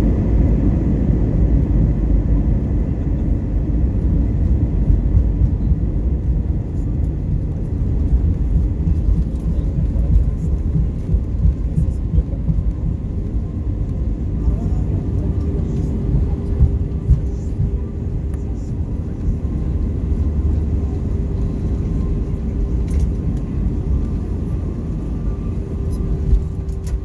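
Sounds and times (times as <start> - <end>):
airliner cabin engine rumble: 0.0 - 27.0.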